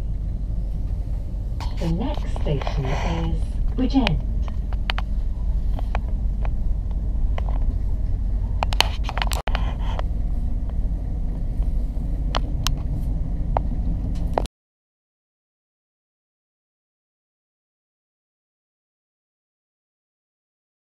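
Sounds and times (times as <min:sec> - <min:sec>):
train rumbling inside carriage: 0:00.0 - 0:14.5
sharp clicks of train: 0:00.9 - 0:12.9, 0:13.5 - 0:14.5.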